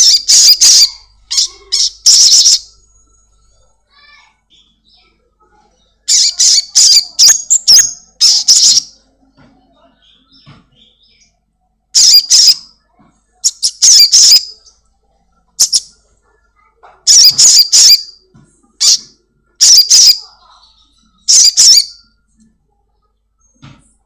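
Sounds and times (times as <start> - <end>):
bird squawking chirps: 0.0 - 3.7, 6.1 - 9.0, 12.0 - 12.7, 13.4 - 14.7, 15.6 - 15.9, 17.1 - 18.2, 18.8 - 22.2.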